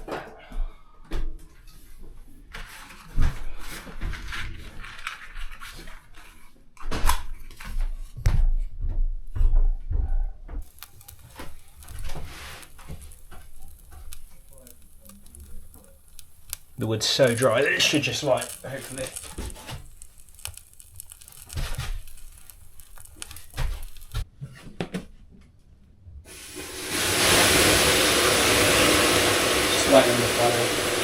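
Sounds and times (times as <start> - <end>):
firewood knocking and clattering: 10.6 - 25.0.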